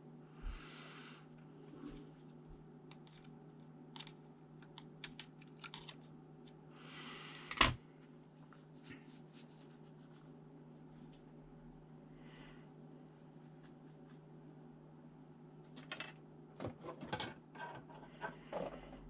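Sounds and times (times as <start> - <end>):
small clicks and taps of parts: 2.8 - 6.6.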